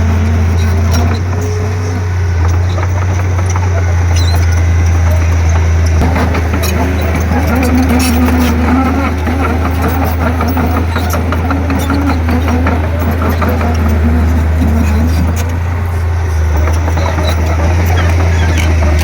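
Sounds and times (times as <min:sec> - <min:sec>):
bulldozer diesel engine droning: 0:00.0 - 0:19.0
sharp metal clicks and clanks: 0:02.4 - 0:15.7.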